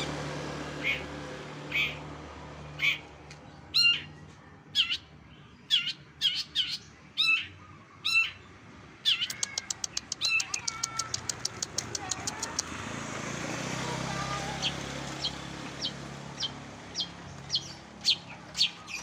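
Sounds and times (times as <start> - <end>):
songbird calling: 0.8 - 1.1, 1.7 - 2.1, 2.7 - 12.7, 14.2 - 19.0
thin high ticks: 9.2 - 12.7.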